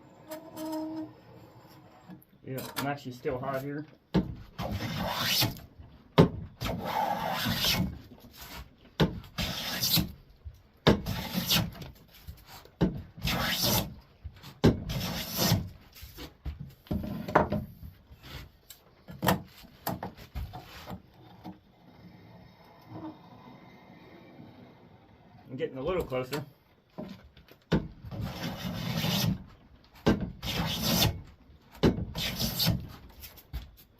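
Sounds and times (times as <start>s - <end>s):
hand plane rasping along wood: 4.6s - 5.6s, 6.7s - 8.6s, 9.4s - 10.1s, 11.0s - 11.8s, 13.2s - 13.9s, 14.9s - 15.7s, 28.1s - 29.4s, 30.4s - 31.2s, 32.2s - 32.9s.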